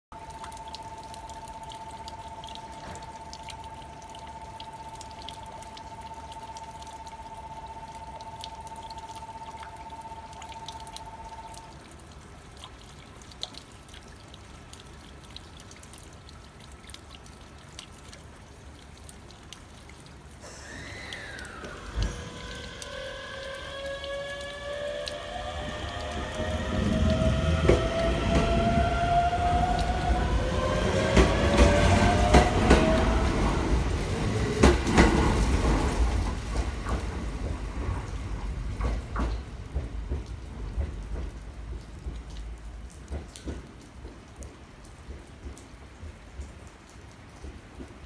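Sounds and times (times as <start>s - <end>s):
two-tone electronic bell: 0.7s - 11.7s
electric train motor whine: 20.8s - 34.8s.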